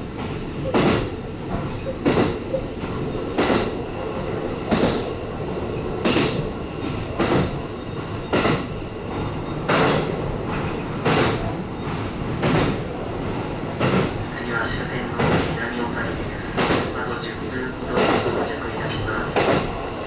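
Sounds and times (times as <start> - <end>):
train rumbling: 0.0 - 20.0
wheels clacking over rail joints: 0.2 - 3.8.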